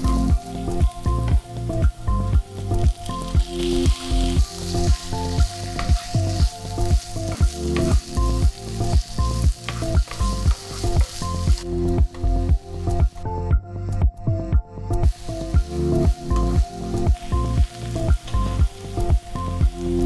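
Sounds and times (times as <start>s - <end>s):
vegetables sizzling in hot oil: 0.0s - 1.3s, 2.6s - 11.7s, 15.0s - 20.0s
music with steady beat: 0.0s - 20.0s.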